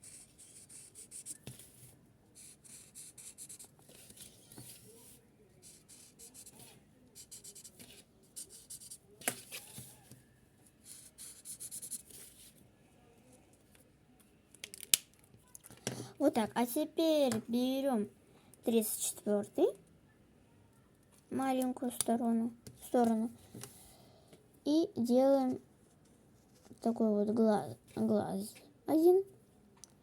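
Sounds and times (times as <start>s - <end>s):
marker scratching on paper: 0.0s - 1.6s, 2.4s - 4.9s, 5.6s - 9.6s, 10.9s - 12.2s.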